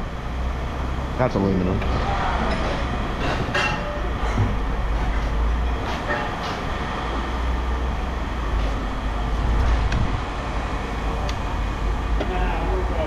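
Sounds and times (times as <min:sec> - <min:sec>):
heavy machinery rumbling: 0:00.0 - 0:13.0.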